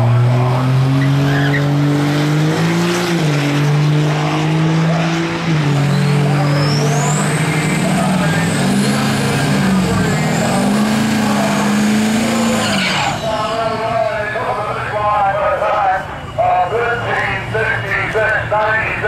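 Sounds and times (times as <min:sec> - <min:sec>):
diesel truck engine high revs: 0:00.0 - 0:19.0.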